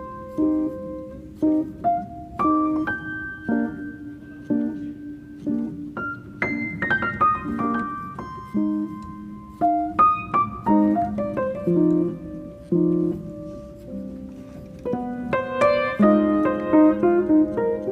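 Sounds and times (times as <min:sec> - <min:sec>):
calm solo piano: 0:00.0 - 0:17.9.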